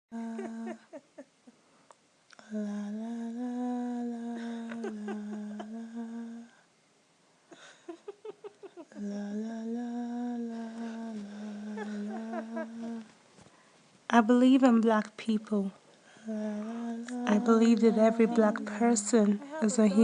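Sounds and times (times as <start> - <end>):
person humming a slow melody: 0.1 - 1.2, 2.3 - 6.7, 8.8 - 13.1, 16.2 - 20.0.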